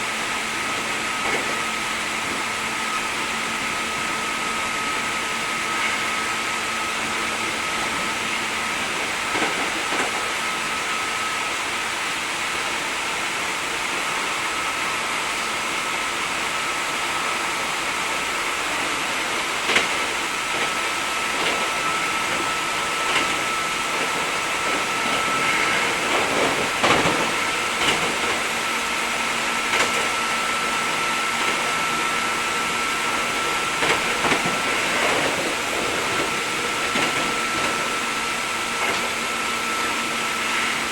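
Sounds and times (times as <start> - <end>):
train motor whine: 0.0 - 40.9
train rolling noise: 0.0 - 40.9
wheels clicking over track: 19.5 - 28.6, 29.7 - 30.2, 33.4 - 38.1.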